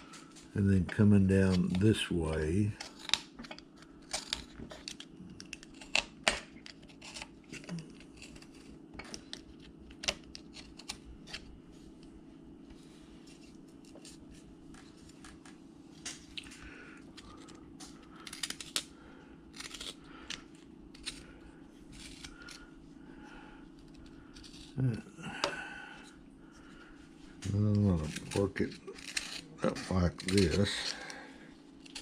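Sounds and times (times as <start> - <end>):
knife blade scraping wood: 27.8 - 31.1.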